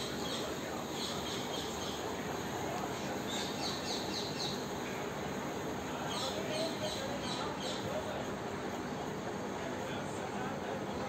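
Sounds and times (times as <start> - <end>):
small birds chirping: 0.0 - 2.2, 3.0 - 5.1, 6.0 - 8.0
steady background noise: 0.0 - 11.0.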